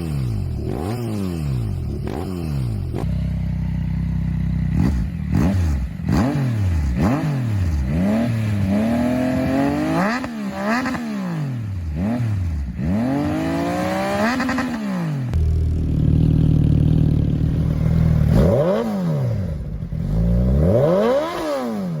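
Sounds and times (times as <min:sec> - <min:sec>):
motorcycle engine revving: 0:00.0 - 0:22.0
motorcycle engine idling: 0:01.5 - 0:06.1, 0:15.3 - 0:20.6.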